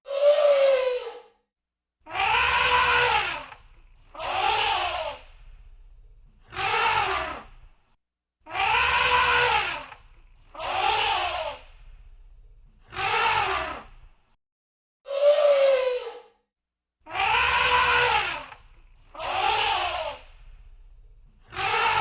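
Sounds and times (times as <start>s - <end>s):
elephant trumpeting: 2.1s - 3.6s, 8.5s - 10.0s, 17.1s - 18.6s.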